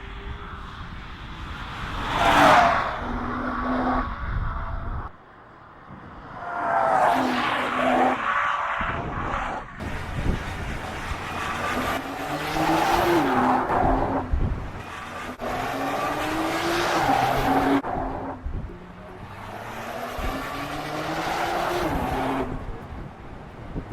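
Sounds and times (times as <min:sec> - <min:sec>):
car engine revving hard: 0:09.8 - 0:18.2.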